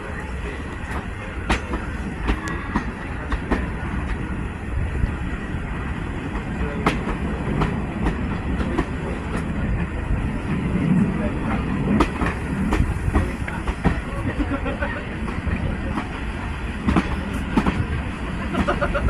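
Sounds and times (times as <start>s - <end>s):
train rumbling: 0.0s - 19.0s
wheels clicking on rails: 6.2s - 19.0s.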